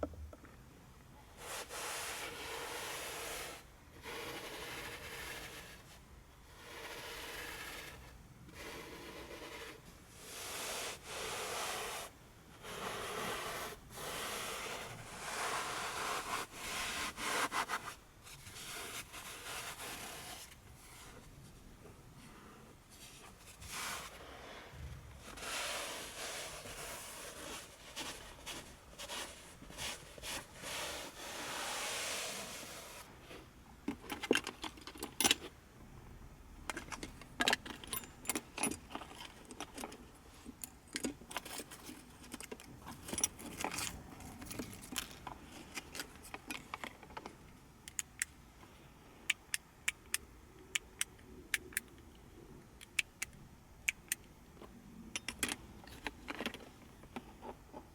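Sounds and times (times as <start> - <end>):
rubbing and scraping: 1.4 - 21.6, 22.2 - 33.5
sharp clicks: 52.8 - 54.3.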